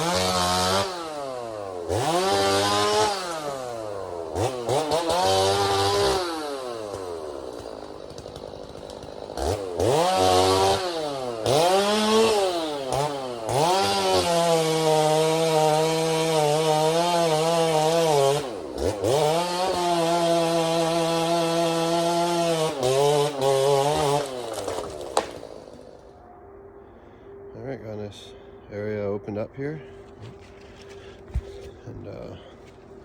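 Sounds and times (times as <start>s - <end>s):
chainsaw revving: 0.0s - 25.8s.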